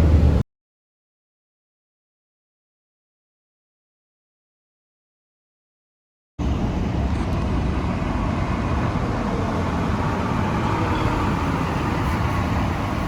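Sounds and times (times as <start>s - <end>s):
road traffic passing: 0.0s - 0.4s, 6.4s - 13.0s.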